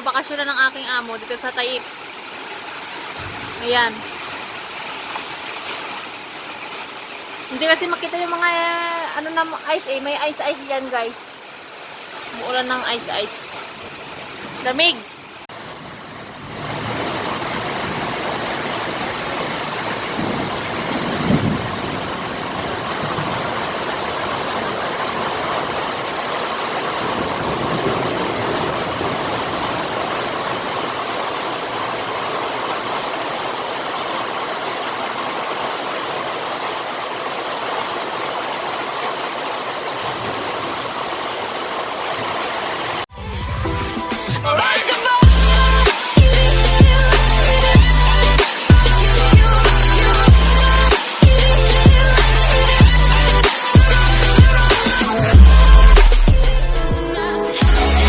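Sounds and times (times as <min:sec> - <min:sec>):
heavy rain and hail: 0:00.0 - 0:43.1
music: 0:43.1 - 0:58.0.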